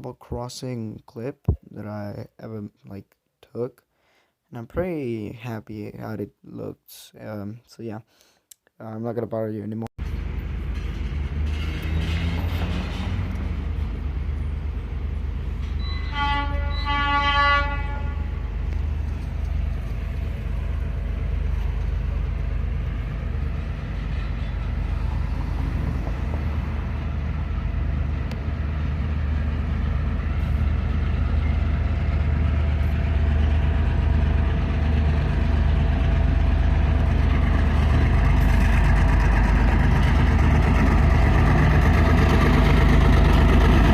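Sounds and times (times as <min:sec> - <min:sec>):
train rumble: 0:10.0 - 0:43.9
locomotive horn blast: 0:15.8 - 0:18.6.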